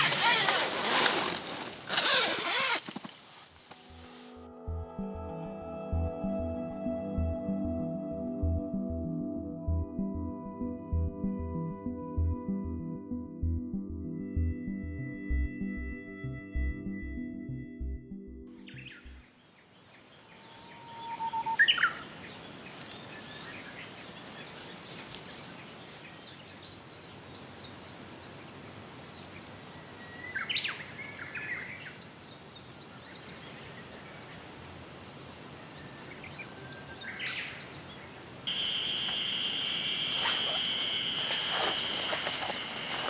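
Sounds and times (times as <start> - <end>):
steady outdoor hiss: 1.5 - 9.6, 18.6 - 43.0.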